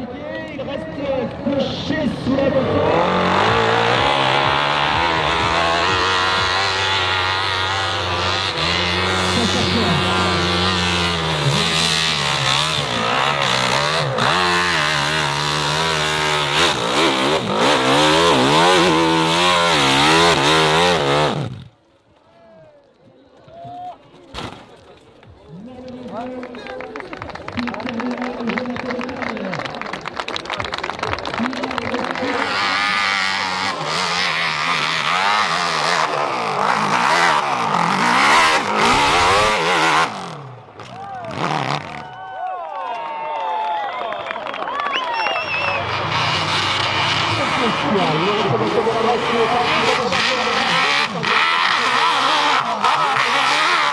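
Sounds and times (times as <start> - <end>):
motorcycle engine revving: 1.5 - 21.9, 31.1 - 42.1, 45.3 - 53.9.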